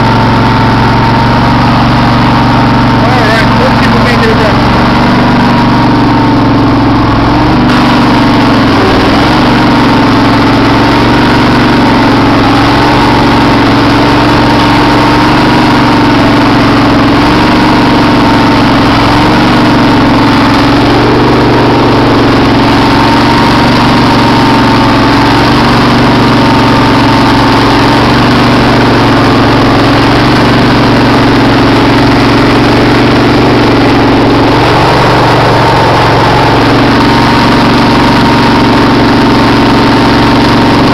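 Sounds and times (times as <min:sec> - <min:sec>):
riding mower engine running: 0:00.0 - 0:40.9.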